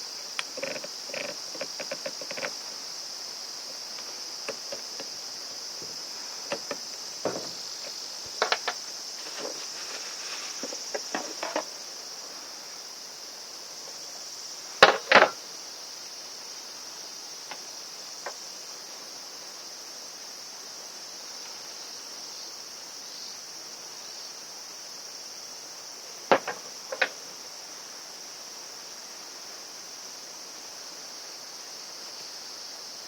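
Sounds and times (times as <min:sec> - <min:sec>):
insects chirring: 0:00.0 - 0:33.0
parts clicking and knocking: 0:05.9 - 0:08.8, 0:10.6 - 0:11.7.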